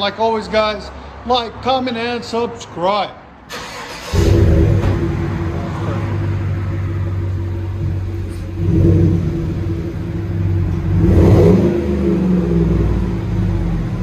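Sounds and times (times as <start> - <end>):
truck engine idling and revving: 3.4 - 14.0.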